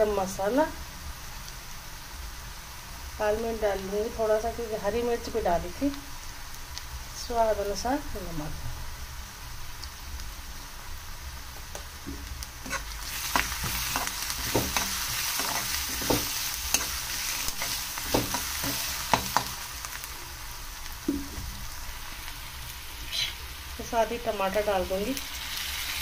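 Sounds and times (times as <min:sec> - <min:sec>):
onions sizzling in oil: 0:00.0 - 0:26.0
spatula scraping a pan: 0:12.6 - 0:19.6, 0:23.0 - 0:23.4.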